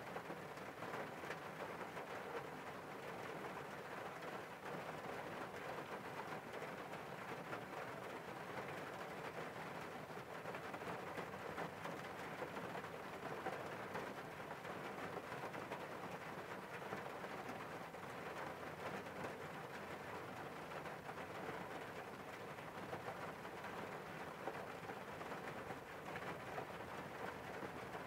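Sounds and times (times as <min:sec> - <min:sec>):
rain hitting a car window: 0:00.0 - 0:28.0.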